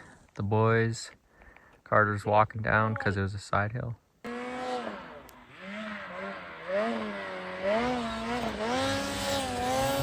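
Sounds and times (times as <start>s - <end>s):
snowmobile engine revving: 4.2s - 10.0s.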